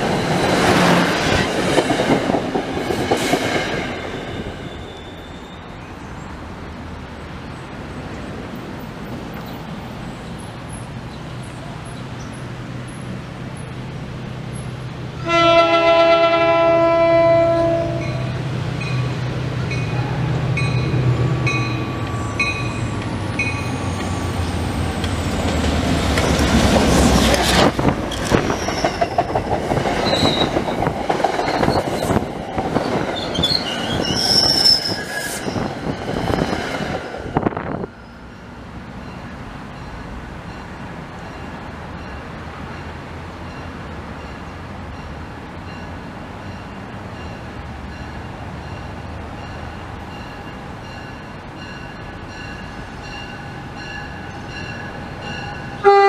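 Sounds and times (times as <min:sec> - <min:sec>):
train rumble: 0:00.0 - 0:56.0
train horn blast: 0:15.2 - 0:18.2, 0:55.8 - 0:56.0.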